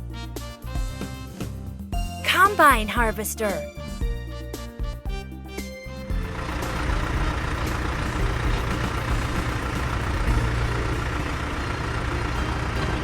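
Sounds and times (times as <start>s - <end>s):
combine harvester engine rumbling: 6.1s - 13.0s.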